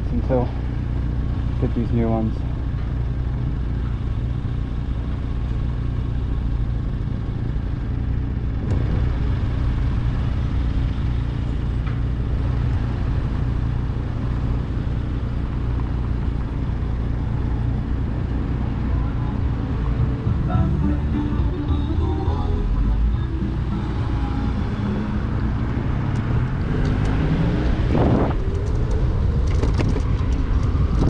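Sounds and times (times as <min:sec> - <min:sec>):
motorcycle engine idling: 0:00.0 - 0:08.6, 0:09.2 - 0:25.3.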